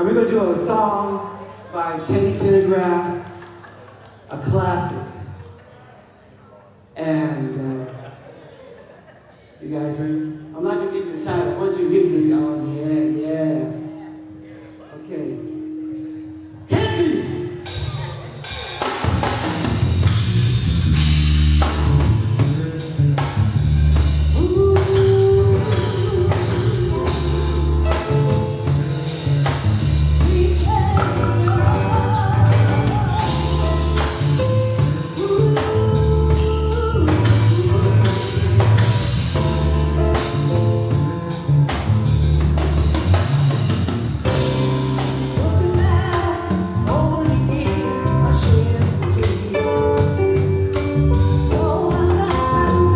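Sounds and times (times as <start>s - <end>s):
live band playing: 10.6s - 52.9s
drum kit and bass beat: 16.7s - 52.9s.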